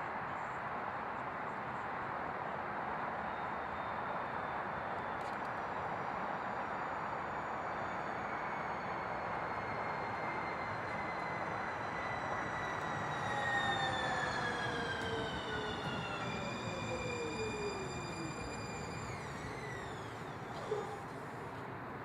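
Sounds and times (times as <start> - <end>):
light-rail train running on rails: 0.0 - 22.0
electric drive whine: 7.7 - 21.6.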